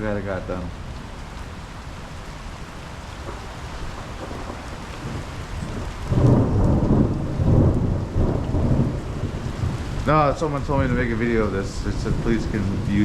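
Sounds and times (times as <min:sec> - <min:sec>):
heavy rain hissing: 0:00.0 - 0:13.0
rolling thunder: 0:03.2 - 0:13.0.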